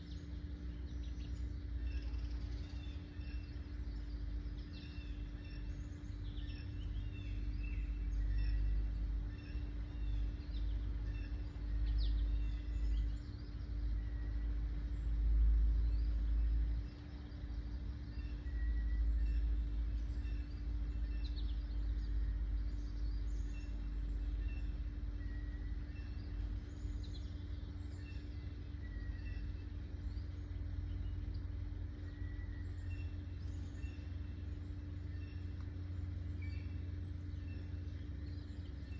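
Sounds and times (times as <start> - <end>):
birds chirping and calling: 0.0 - 38.9
steady low hum: 0.0 - 38.9.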